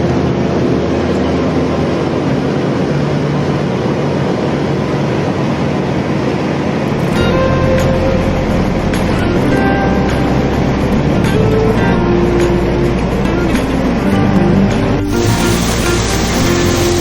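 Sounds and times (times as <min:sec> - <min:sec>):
corn harvester engine running: 0:15.1 - 0:17.0.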